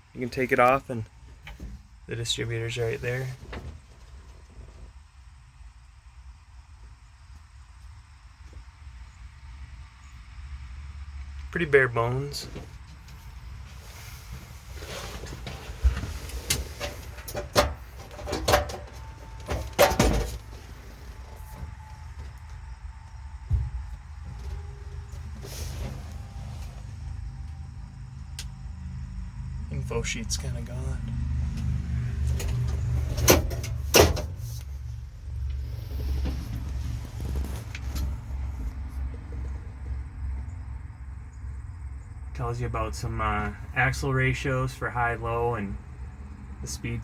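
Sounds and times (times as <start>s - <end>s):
steady low rumble: 9.0s - 47.0s
sharp knocks and clunks: 15.4s - 20.6s, 32.4s - 34.5s.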